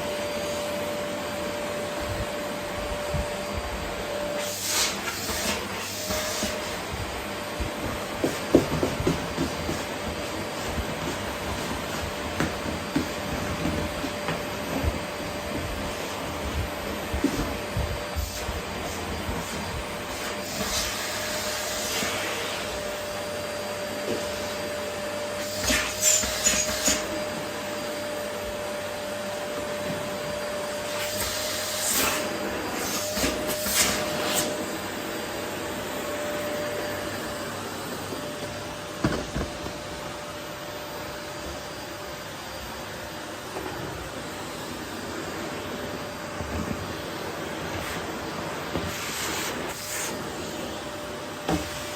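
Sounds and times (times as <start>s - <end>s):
vacuum cleaner running: 0.0s - 51.9s
vacuum rushes and clicks: 0.2s - 40.3s.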